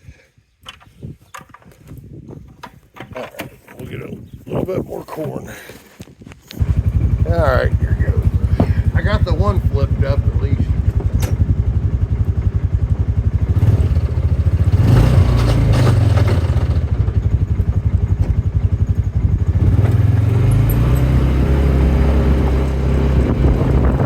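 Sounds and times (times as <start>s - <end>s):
farm machinery engine droning: 6.6s - 24.0s.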